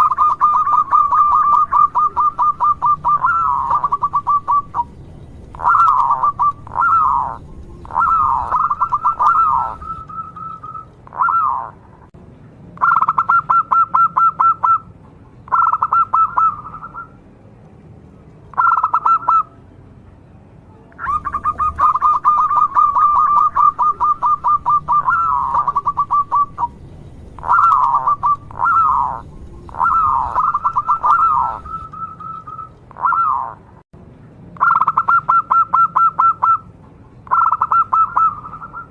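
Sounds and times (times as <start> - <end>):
dove cooing: 0.0 - 11.8, 12.8 - 14.8, 15.5 - 17.1, 18.6 - 19.5, 21.0 - 26.8, 27.4 - 33.6, 37.3 - 38.9.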